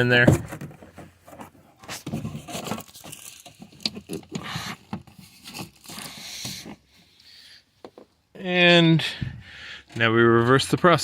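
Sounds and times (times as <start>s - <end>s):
plastic panel scraping and rustling: 0.0s - 7.0s.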